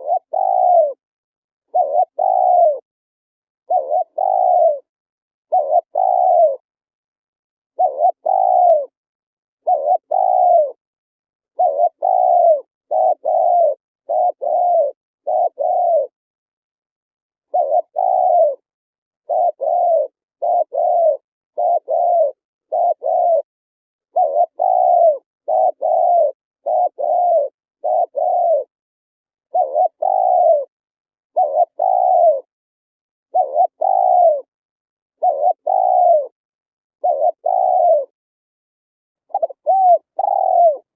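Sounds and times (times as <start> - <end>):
dove cooing: 0.0 - 1.0, 1.7 - 2.9, 3.7 - 4.9, 5.5 - 6.7, 7.8 - 9.0, 9.6 - 10.8, 11.5 - 16.2, 17.4 - 23.5, 24.1 - 28.7, 29.5 - 32.5, 33.3 - 34.5, 35.2 - 36.4, 37.0 - 38.2, 39.2 - 40.9.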